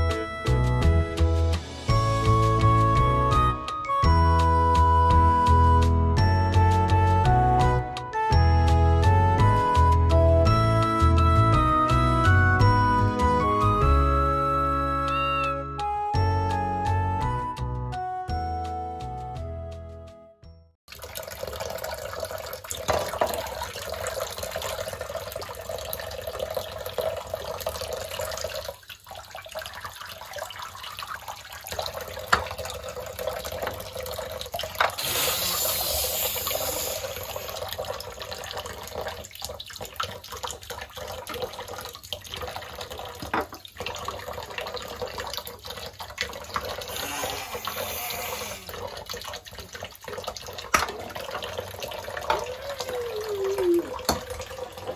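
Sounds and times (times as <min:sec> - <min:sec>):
tap water splashing into sink: 0:20.9 - 0:54.9.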